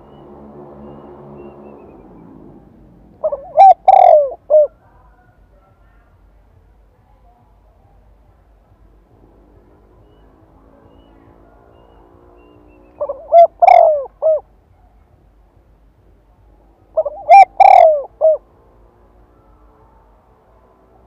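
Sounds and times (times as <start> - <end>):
dove cooing: 1.9 - 4.8, 12.4 - 14.5, 17.0 - 18.4.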